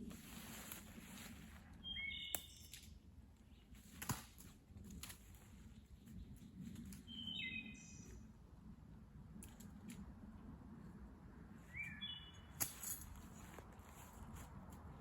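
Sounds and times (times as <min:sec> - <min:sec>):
faint woodland background: 0:00.0 - 0:15.0
bird chirping calls: 0:01.8 - 0:02.8, 0:07.0 - 0:08.2, 0:11.7 - 0:12.6.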